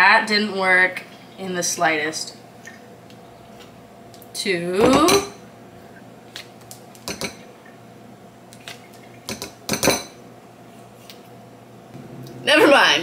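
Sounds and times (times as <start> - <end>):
spoons clinking on ceramic bowl: 7.1 - 7.4.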